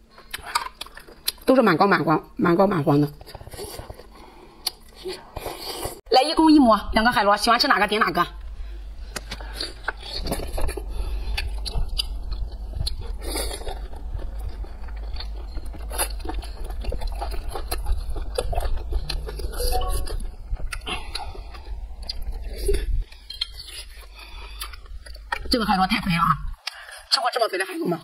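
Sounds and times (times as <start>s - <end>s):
low steady hum: 0.0s - 28.0s
chewing wet mouth sounds: 9.1s - 25.5s.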